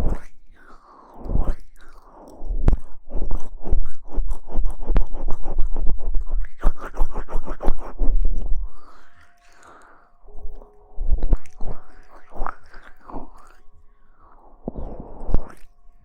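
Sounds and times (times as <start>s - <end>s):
rustling and scrubbing on microphone: 2.5s - 8.7s.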